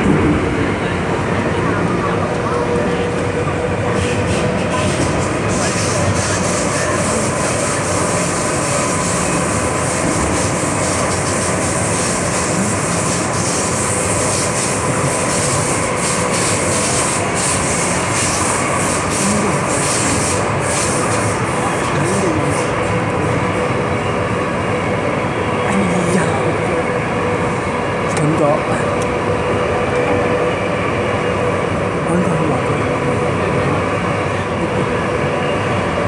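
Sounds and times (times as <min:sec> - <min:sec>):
electric train running on track: 0:00.0 - 0:36.0.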